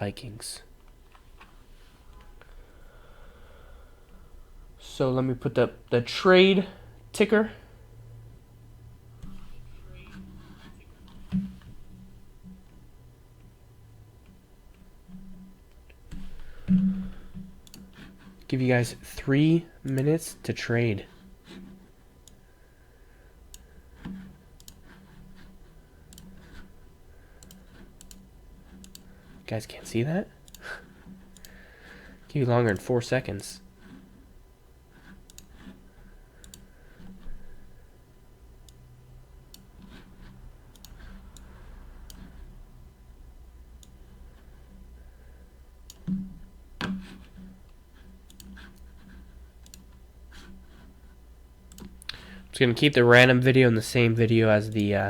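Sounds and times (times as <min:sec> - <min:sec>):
low steady hum: 0:00.0 - 0:55.0
computer mouse and keys clicking: 0:14.2 - 0:18.5, 0:19.8 - 0:20.1, 0:23.5 - 0:26.8, 0:27.4 - 0:29.4, 0:30.4 - 0:31.6, 0:32.6 - 0:32.9, 0:35.0 - 0:35.8, 0:36.4 - 0:37.4, 0:39.5 - 0:42.4, 0:43.8 - 0:44.5, 0:45.9 - 0:51.0, 0:51.7 - 0:52.5.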